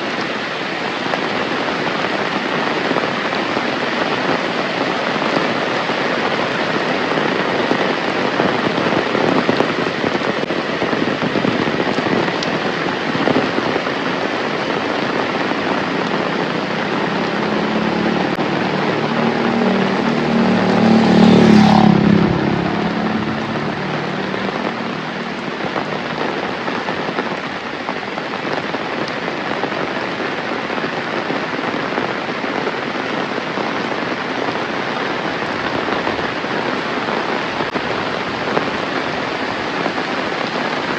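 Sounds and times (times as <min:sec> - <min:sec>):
heavy rain pouring: 0:00.0 - 0:40.9
vehicle passing: 0:15.7 - 0:26.7.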